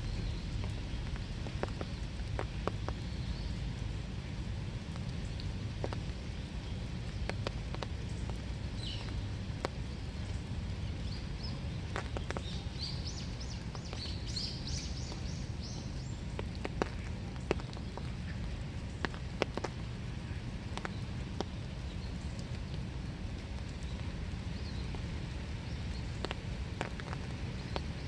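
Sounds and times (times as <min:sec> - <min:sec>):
rain falling: 0:00.0 - 0:28.0
water drips tapping: 0:00.0 - 0:28.0
bird chirping: 0:11.0 - 0:16.1.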